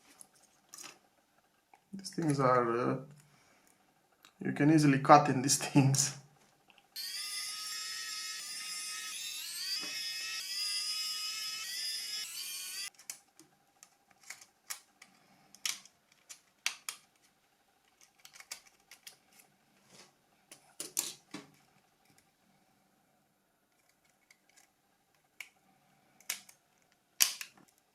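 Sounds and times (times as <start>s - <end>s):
plastic parts clicking: 12.9s - 19.5s, 20.5s - 22.3s, 23.7s - 25.6s, 26.2s - 27.9s.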